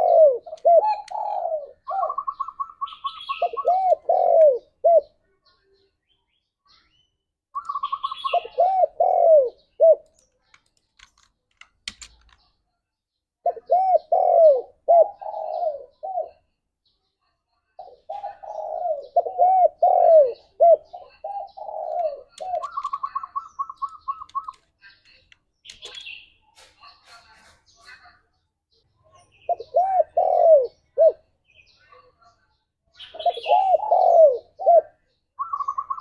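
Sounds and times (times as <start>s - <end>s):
dove cooing: 0.0s - 5.2s, 7.6s - 10.1s, 13.4s - 16.5s, 17.8s - 24.6s, 29.5s - 31.2s, 33.0s - 36.0s.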